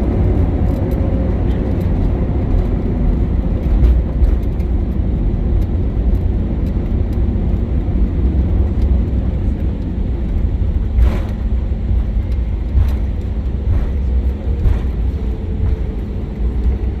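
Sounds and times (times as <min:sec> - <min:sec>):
low rumble of engines and wheels: 0:00.0 - 0:17.0
short knocks over bumps: 0:10.9 - 0:16.8.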